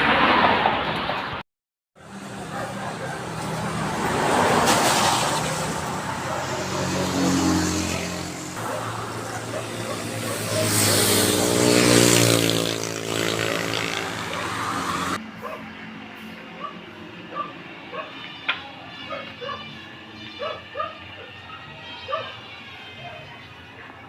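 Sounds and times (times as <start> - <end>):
motorcycle engine revving: 2.0 - 15.6.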